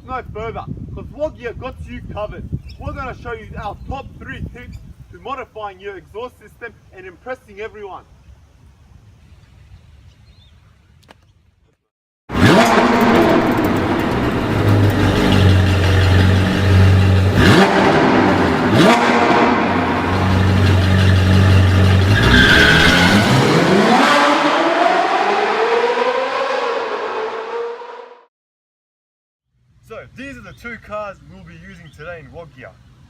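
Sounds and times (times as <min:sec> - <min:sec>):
car engine revving: 0:12.3 - 0:28.3.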